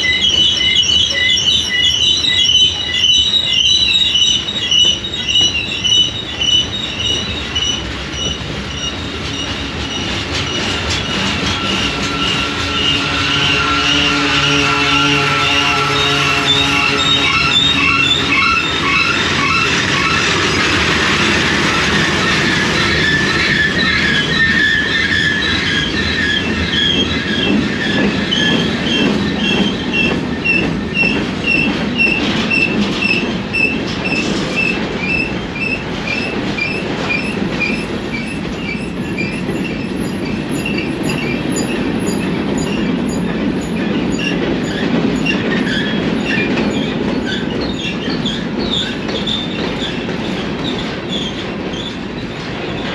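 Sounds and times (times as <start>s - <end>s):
train wheels rumbling on rails: 0.0s - 52.9s
short high-pitched squeals: 11.1s - 20.5s.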